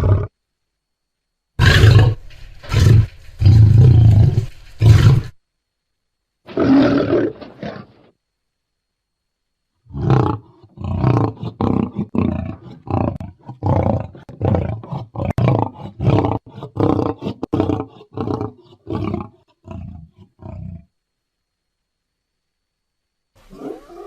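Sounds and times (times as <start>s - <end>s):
lion roaring: 0.0s - 0.3s, 1.6s - 5.4s, 6.5s - 8.1s, 9.9s - 20.9s, 23.4s - 24.0s.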